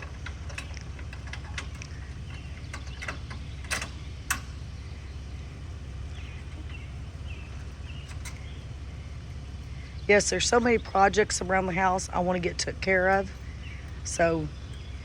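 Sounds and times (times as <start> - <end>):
steady low rumble: 0.0 - 15.0
faint bird chirps: 1.8 - 11.2, 13.3 - 15.0.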